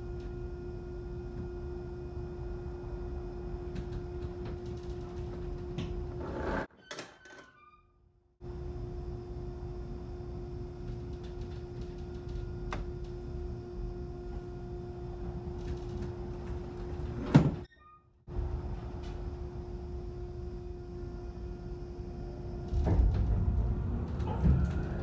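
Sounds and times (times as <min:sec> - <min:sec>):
ferry machinery hum: 0:00.0 - 0:06.7, 0:08.4 - 0:17.6, 0:18.3 - 0:25.0
low rumble: 0:22.5 - 0:25.0.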